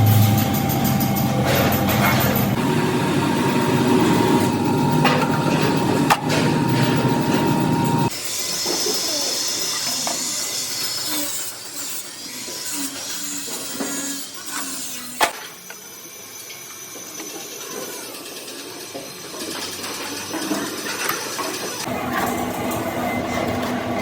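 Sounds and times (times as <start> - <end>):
workshop hiss: 0.0 - 24.0
tools clattering: 4.0 - 8.1.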